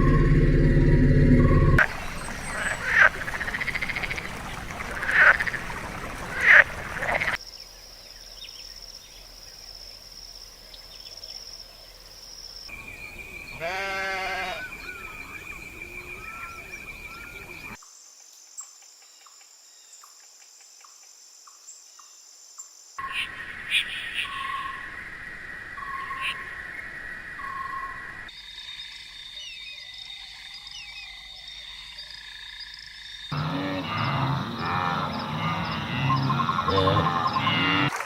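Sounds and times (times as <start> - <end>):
loud animal calls: 1.8 - 7.4, 13.6 - 15.0
wavering bleat-like call: 13.6 - 14.7.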